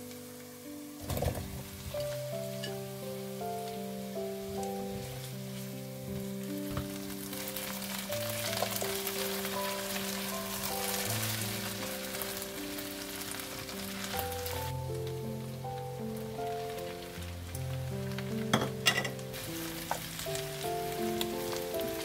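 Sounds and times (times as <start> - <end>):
soft background music: 0.0 - 22.0
vegetables sizzling in oil: 0.0 - 22.0.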